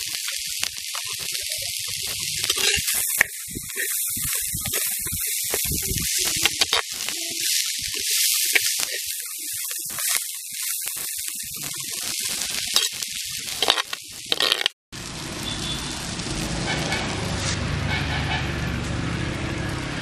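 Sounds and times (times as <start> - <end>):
beans sizzling in a pot: 0.0 - 17.5
metal spatula scraping: 2.4 - 10.8, 12.0 - 14.7.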